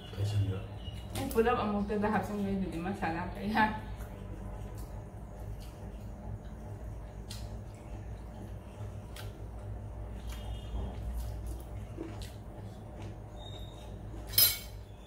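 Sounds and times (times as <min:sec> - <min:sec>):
chewing and wet mouth clicks: 0:04.0 - 0:10.6, 0:11.2 - 0:13.2.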